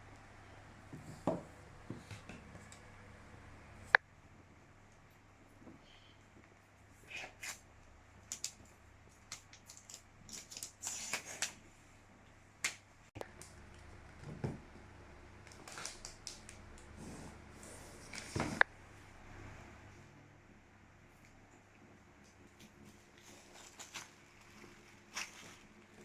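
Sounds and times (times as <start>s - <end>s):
paper or plastic rustling: 22.6s - 26.0s.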